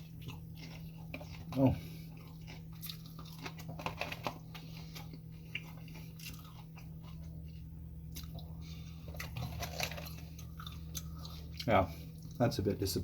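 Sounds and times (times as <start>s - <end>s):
chewing crunchy food: 0.0s - 12.6s
steady low hum: 0.0s - 13.0s.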